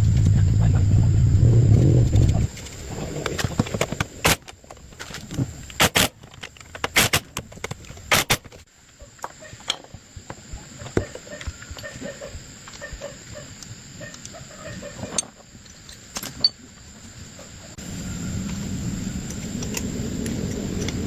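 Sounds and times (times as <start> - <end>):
low rumble: 0.0 - 3.2
metal parts clacking and clinking: 15.1 - 16.6.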